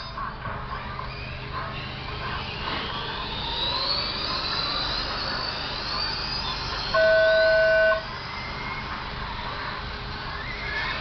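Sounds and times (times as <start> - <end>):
rc car motors whining: 0.0 - 11.0
electronic beep: 3.6 - 8.1.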